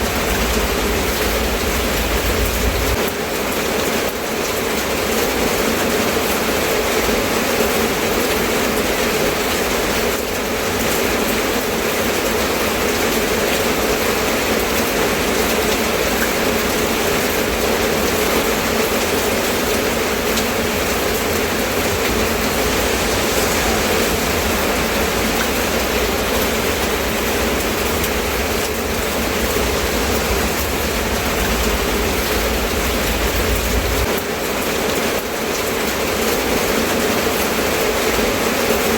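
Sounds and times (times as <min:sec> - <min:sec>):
low rumble: 0:00.0 - 0:03.1, 0:18.0 - 0:34.2
steady rain falling: 0:00.0 - 0:38.9.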